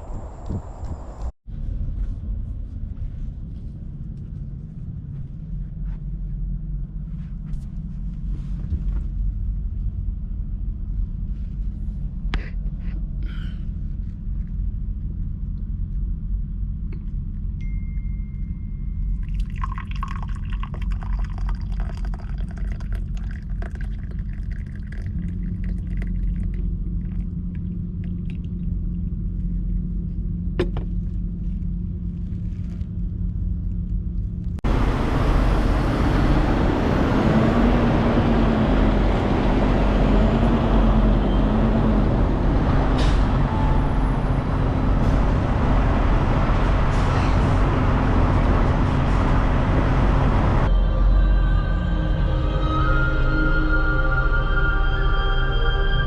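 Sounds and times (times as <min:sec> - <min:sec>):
road noise: 0:00.0 - 0:01.4, 0:34.6 - 0:50.9
truck engine rumbling: 0:34.5 - 0:55.2.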